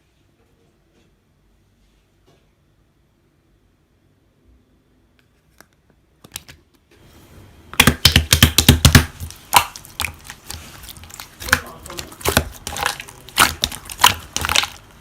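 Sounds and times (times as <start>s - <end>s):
slime crackling and popping: 7.8s - 15.0s.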